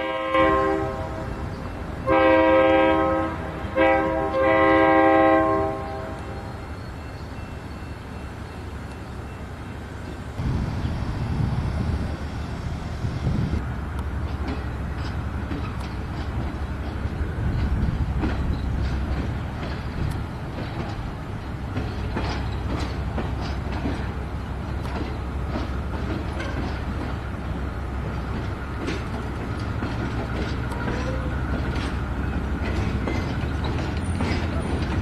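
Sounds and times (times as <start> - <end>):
low locomotive rumble: 0.0 - 35.0
train wheels clicking and clanking: 13.9 - 35.0.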